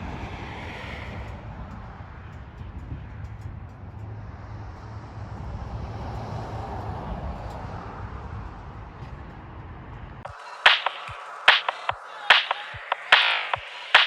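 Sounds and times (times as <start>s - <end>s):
rushing noise: 10.2s - 14.0s.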